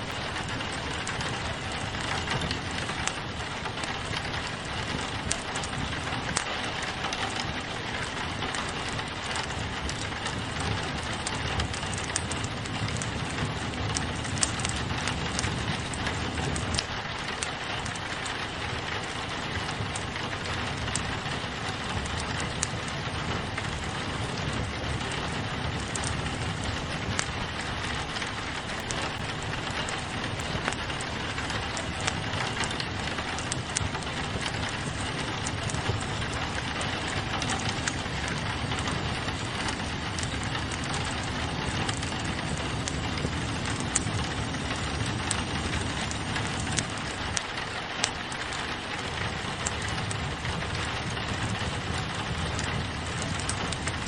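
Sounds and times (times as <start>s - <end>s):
fireplace fire crackling: 0.0s - 54.0s
rain pattering on a window: 0.0s - 54.0s.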